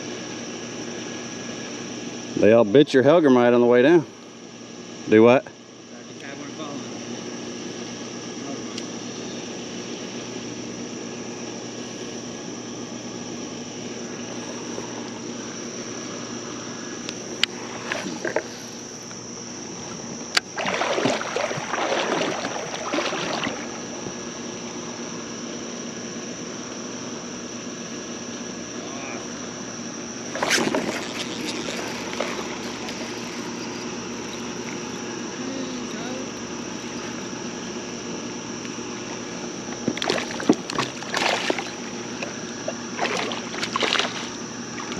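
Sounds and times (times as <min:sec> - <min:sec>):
faint high whine: 0:00.0 - 0:44.9
splashing and rustling: 0:20.4 - 0:24.0, 0:30.3 - 0:33.6, 0:39.9 - 0:44.9
creek water: 0:20.4 - 0:25.0, 0:30.3 - 0:37.3, 0:39.0 - 0:44.9.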